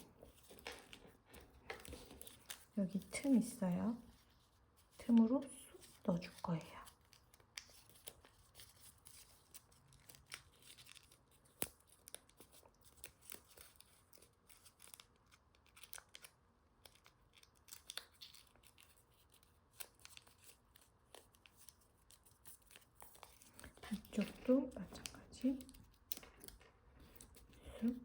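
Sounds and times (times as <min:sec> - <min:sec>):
paper rustling and crinkling: 0:00.0 - 0:28.0
soft paper clicks: 0:00.3 - 0:03.3, 0:04.1 - 0:28.0
sharp paper tick: 0:06.2 - 0:27.9.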